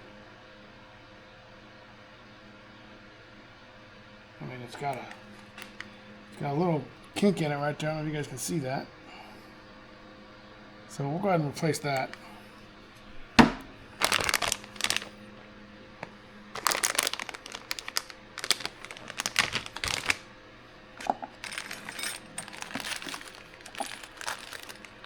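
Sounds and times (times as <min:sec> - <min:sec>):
plastic bag crinkling: 0:05.2 - 0:05.9, 0:11.8 - 0:12.4, 0:13.4 - 0:15.2, 0:16.0 - 0:20.3, 0:21.0 - 0:25.0
small parts clicking: 0:21.0 - 0:25.0.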